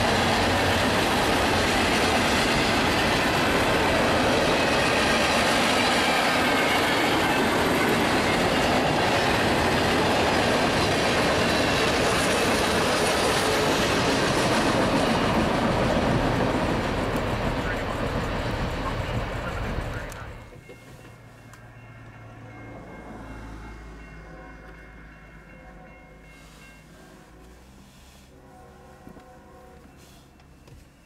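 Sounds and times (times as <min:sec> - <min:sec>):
freight train wheels clattering on rails: 0:00.0 - 0:22.2.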